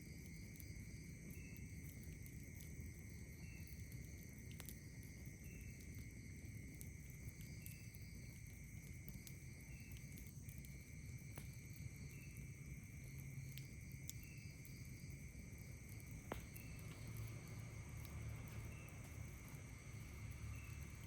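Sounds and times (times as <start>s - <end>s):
campfire crackles: 0.0s - 21.0s
insect chirp: 0.0s - 21.0s
insects trilling: 0.0s - 21.0s.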